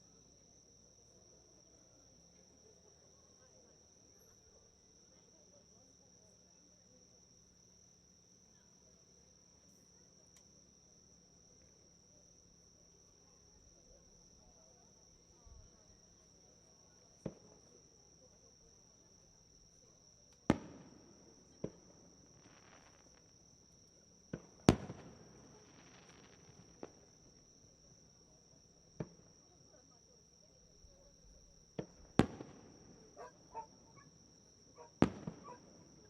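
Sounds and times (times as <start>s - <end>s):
fireworks bangs: 20.4s - 23.4s, 24.2s - 27.5s, 31.8s - 33.8s, 34.8s - 36.0s
fireworks crackling fizz: 20.4s - 23.5s, 24.3s - 27.5s, 31.8s - 33.1s, 35.0s - 36.0s.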